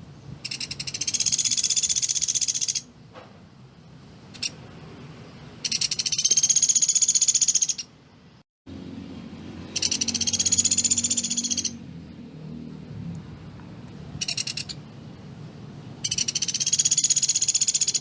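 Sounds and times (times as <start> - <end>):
woodpecker trilling: 0.4 - 2.9, 5.6 - 7.9, 9.7 - 11.8, 14.2 - 14.8, 16.0 - 18.0.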